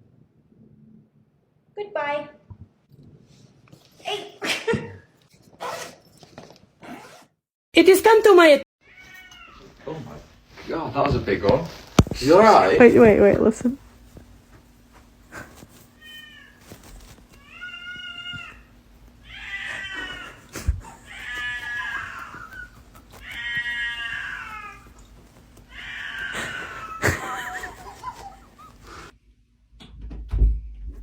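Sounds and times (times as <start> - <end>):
cat meowing: 8.8 - 9.8, 16.0 - 28.3.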